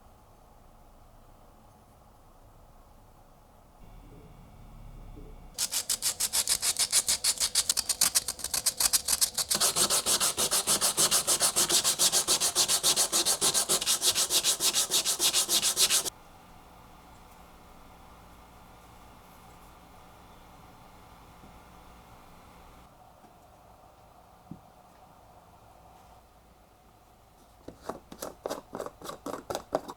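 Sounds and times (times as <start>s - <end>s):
hand sanding strokes on wood: 5.6s - 16.1s.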